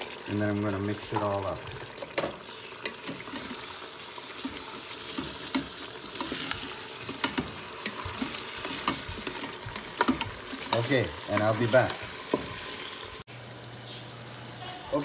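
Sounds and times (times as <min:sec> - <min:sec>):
food sizzling in a pot: 0:00.0 - 0:15.0
spoon scraping and knocking pot: 0:04.4 - 0:12.7.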